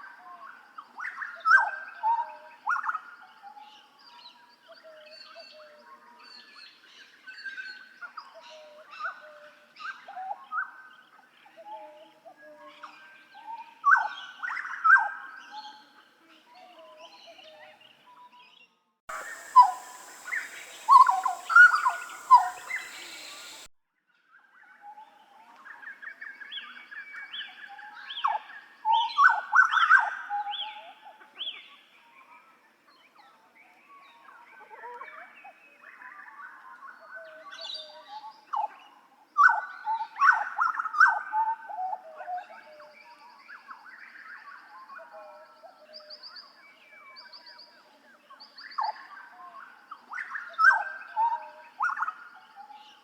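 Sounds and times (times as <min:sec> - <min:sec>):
bird singing: 0:19.1 - 0:23.7.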